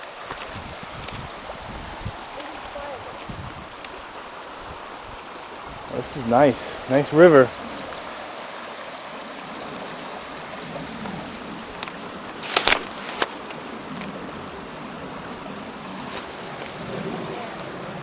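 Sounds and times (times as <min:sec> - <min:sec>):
river rushing: 0:00.0 - 0:18.0.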